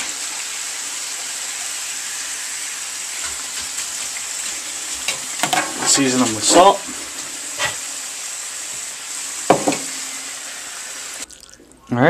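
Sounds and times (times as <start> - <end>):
hot oil sizzling: 0.0 - 12.0.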